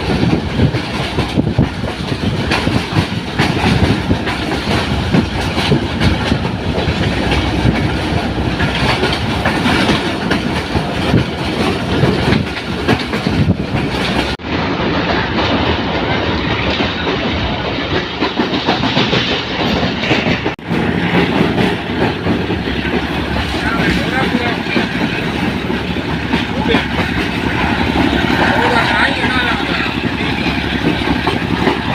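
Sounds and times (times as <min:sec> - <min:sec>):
train wheels clattering: 0:00.0 - 0:31.9.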